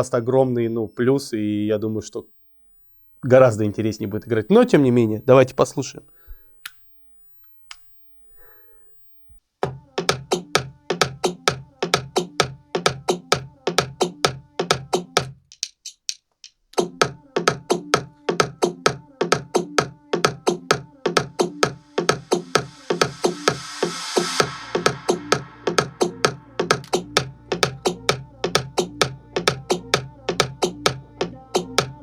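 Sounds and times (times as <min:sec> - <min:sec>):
electronic dance music: 0:09.6 - 0:15.4, 0:16.8 - 0:32.0
rising hiss: 0:22.4 - 0:31.8.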